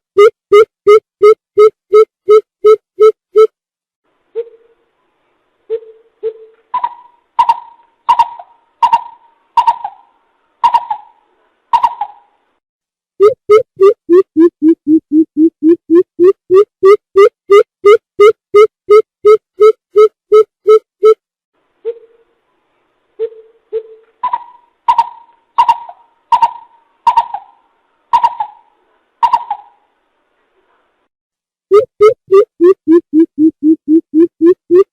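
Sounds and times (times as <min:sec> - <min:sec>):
bird calling in hollow hoots: 0:06.8 - 0:11.2, 0:23.2 - 0:27.6, 0:28.2 - 0:29.8.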